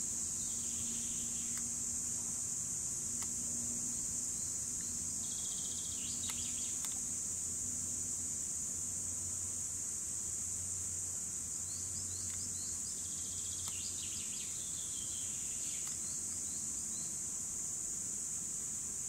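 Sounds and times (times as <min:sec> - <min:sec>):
cicadas buzzing: 0:00.0 - 0:19.0.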